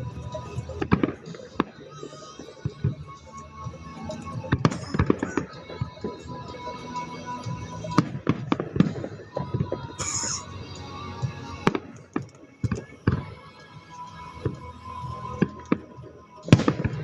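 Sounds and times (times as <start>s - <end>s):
fireworks bangs: 4.5s - 6.7s
firework high hiss: 7.8s - 13.3s.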